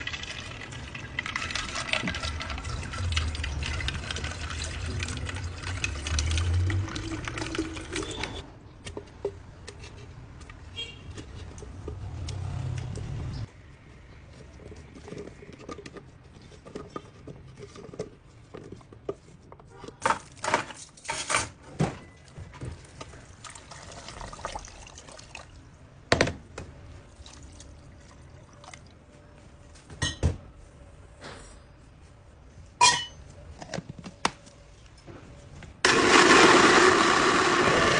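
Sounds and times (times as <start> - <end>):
liquid pouring and sloshing: 0.0 - 8.4, 22.3 - 25.9, 27.0 - 29.2
glass or utensils clinking: 32.8 - 33.2.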